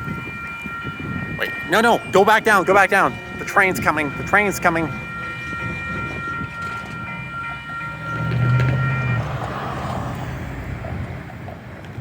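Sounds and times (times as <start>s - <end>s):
high ringing tone: 0.0s - 9.5s
train engine rumble: 0.0s - 12.0s
train rushing noise: 0.0s - 12.0s.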